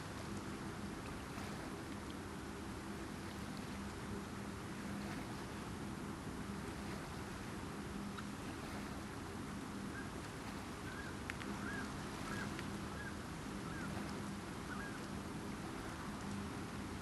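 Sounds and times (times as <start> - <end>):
low hum: 0.0 - 17.0
wind and water rushing: 0.0 - 17.0
bird calls: 9.8 - 15.2.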